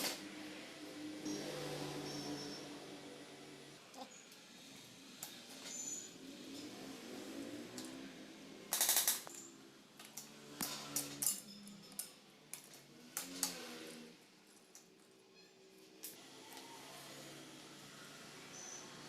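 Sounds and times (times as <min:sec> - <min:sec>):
metal tools clicking and clanking: 0:05.2 - 0:07.0, 0:08.7 - 0:14.0.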